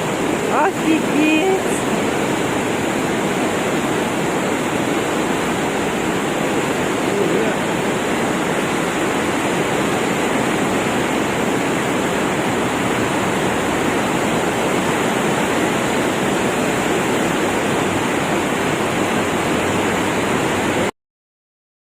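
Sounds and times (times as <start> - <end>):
river floodwater rushing: 0.0 - 20.9.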